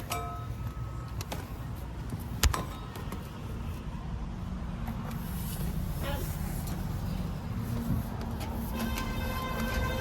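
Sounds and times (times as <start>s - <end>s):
diesel machinery rumbling: 0.0s - 10.0s.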